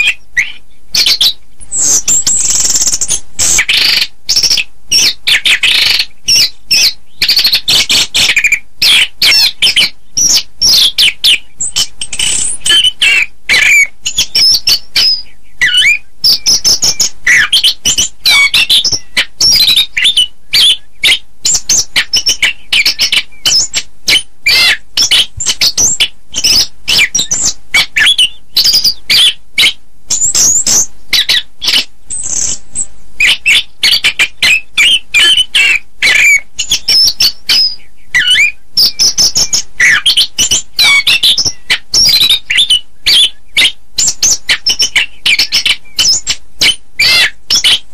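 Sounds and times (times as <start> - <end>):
bird singing whistled phrases: 0.0 - 47.9.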